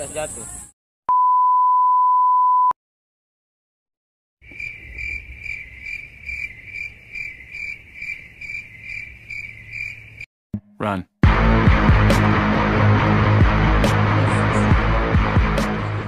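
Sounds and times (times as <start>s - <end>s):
insect chirring: 4.4s - 10.3s.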